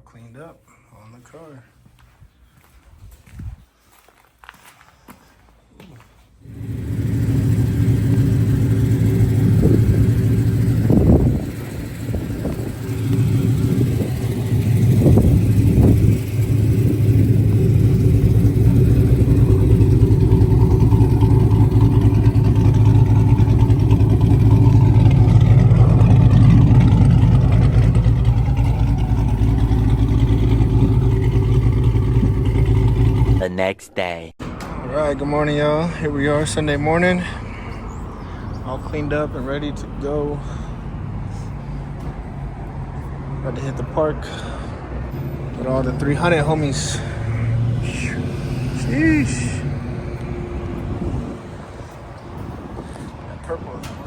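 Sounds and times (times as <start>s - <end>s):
car engine deep exhaust note: 6.4s - 33.4s, 45.1s - 53.1s.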